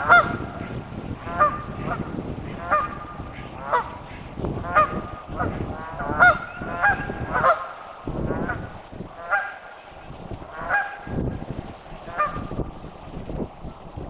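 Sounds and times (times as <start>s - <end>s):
bird honking: 0.0s - 0.6s, 1.3s - 11.2s, 12.0s - 12.7s.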